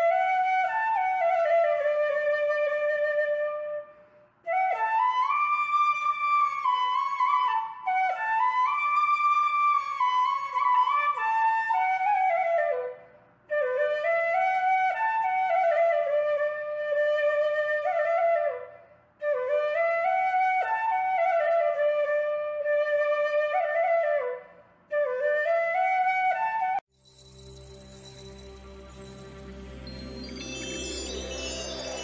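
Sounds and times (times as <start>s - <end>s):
solo flute melody: 0.0s - 32.0s.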